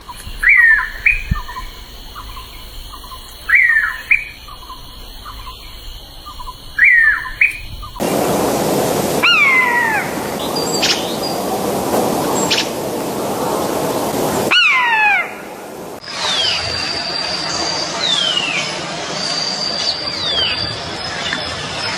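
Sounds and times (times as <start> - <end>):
bird chirping: 0.0 - 8.2, 9.0 - 15.6
steady noise: 0.0 - 16.3
drawn-out falling bird call: 0.0 - 21.4.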